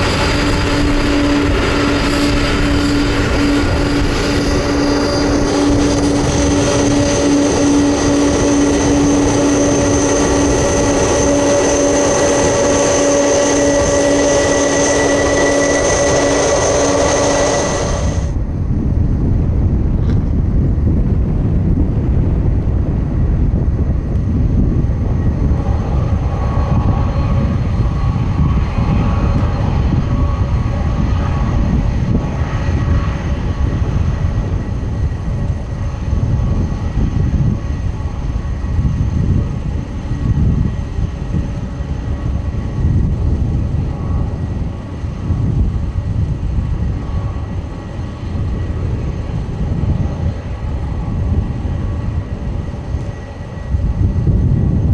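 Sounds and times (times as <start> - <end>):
jet engines running loud: 0.0 - 54.9.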